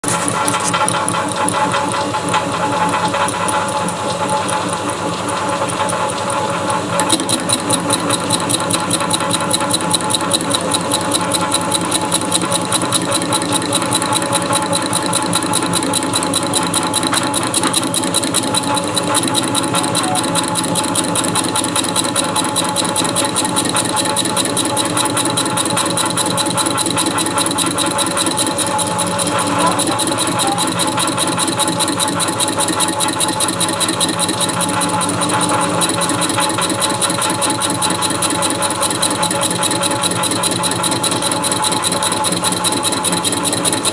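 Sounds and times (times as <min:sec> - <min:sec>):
machine tool motor and gear whine: 0:00.0 - 0:43.9
cutting chatter: 0:07.0 - 0:22.6, 0:26.3 - 0:33.0.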